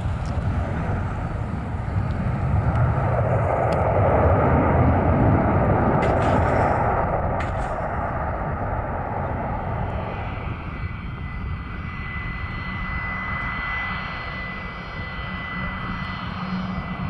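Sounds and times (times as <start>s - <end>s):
airplane engine rumble: 0.0s - 17.0s.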